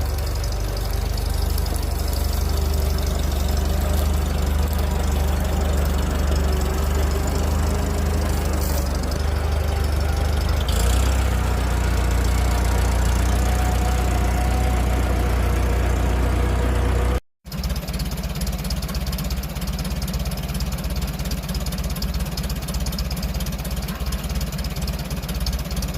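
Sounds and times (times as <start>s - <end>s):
tractor engine running: 0.0s - 25.9s.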